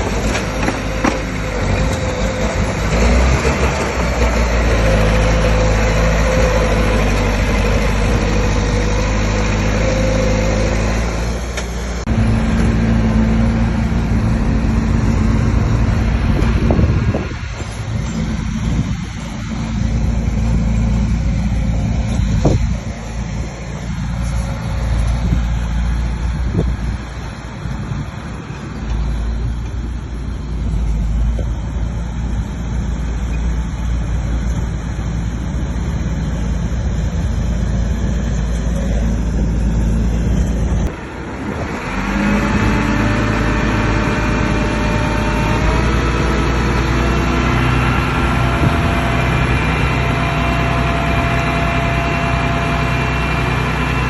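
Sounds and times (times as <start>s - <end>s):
heavy machinery diesel engine rumbling: 0.0s - 54.0s.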